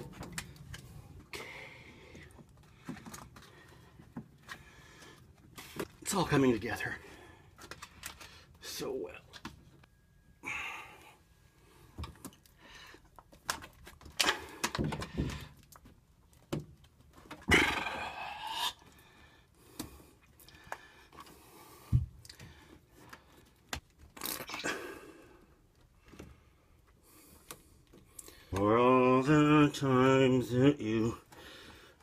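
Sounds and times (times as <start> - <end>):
plastic parts clicking and knocking: 7.6 - 8.4, 12.0 - 17.5.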